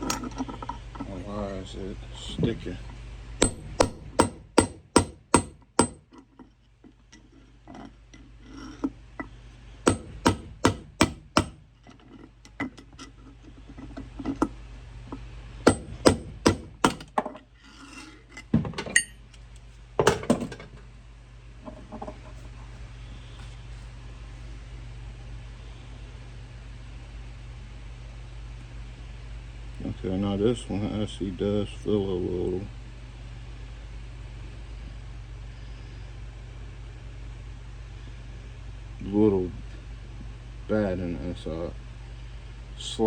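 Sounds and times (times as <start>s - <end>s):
hammer striking metal: 3.4s - 6.1s, 9.9s - 11.6s, 15.7s - 17.1s.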